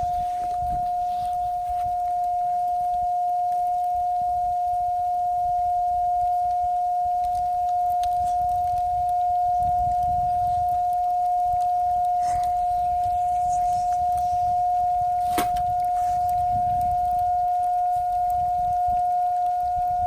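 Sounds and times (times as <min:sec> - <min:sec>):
steady whistling tone: 0:00.0 - 0:20.0
low rumble: 0:08.1 - 0:17.5.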